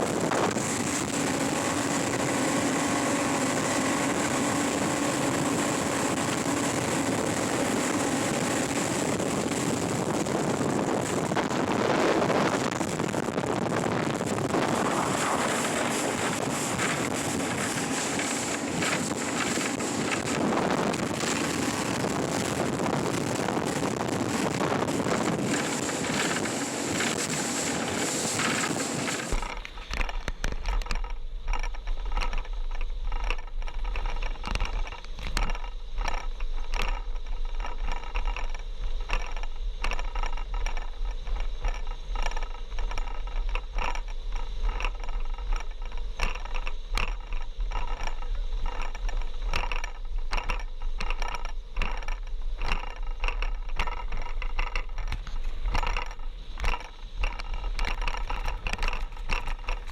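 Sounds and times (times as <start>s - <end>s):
wind on microphone: 0.0s - 31.0s
low hum: 0.0s - 43.5s
rattling and scraping clicks: 12.3s - 59.9s.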